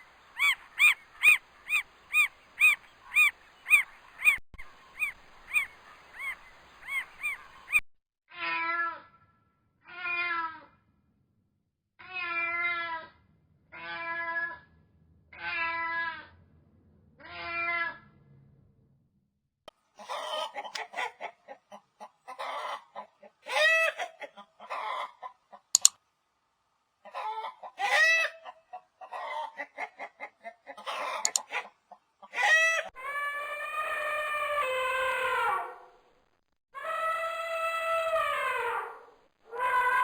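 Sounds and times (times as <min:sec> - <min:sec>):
chicken squawks: 0:00.0 - 0:07.8, 0:20.0 - 0:25.9, 0:27.1 - 0:36.0, 0:36.8 - 0:40.0
chickens clucking: 0:00.0 - 0:07.8, 0:20.0 - 0:25.9, 0:27.1 - 0:34.7.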